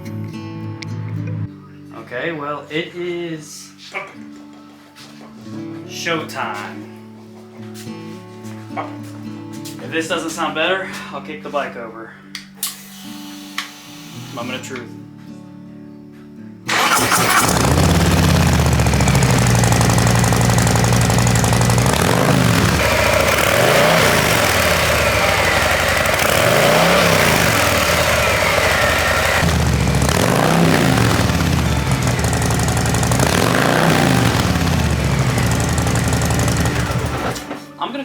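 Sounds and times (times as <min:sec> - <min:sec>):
motorcycle engine idling: 0:16.7 - 0:37.4
motorcycle engine revving: 0:16.7 - 0:37.6
motorcycle engine starting: 0:16.7 - 0:37.8.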